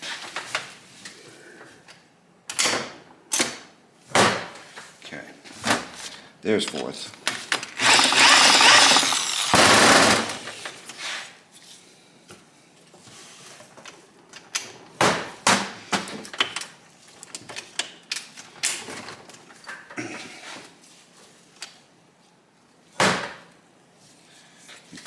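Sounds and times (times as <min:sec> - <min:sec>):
metallic clicks and clunks of gearbox: 0:07.8 - 0:09.6
power drill whirring: 0:07.8 - 0:10.6.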